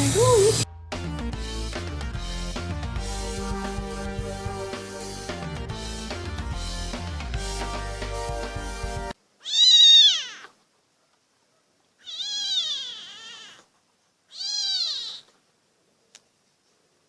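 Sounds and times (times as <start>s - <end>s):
background music: 0.0s - 9.2s
cat meowing: 9.4s - 10.6s, 12.0s - 13.7s, 14.3s - 15.4s.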